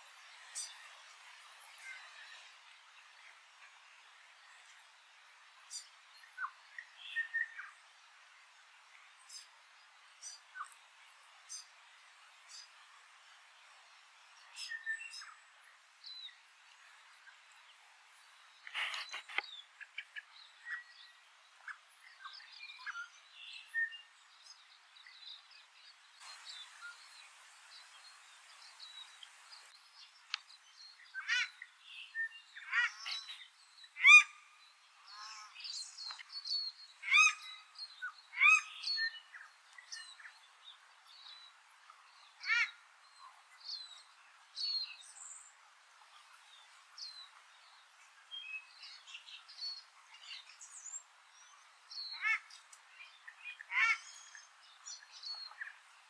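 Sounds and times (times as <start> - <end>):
small birds chirping: 13.7 - 56.0.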